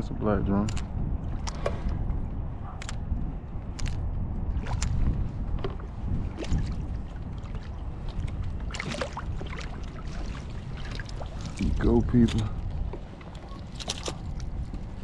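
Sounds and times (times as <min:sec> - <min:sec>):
steady low rumble: 0:00.0 - 0:15.0
short clicks: 0:00.6 - 0:01.7
water lapping against kayak: 0:04.4 - 0:15.0.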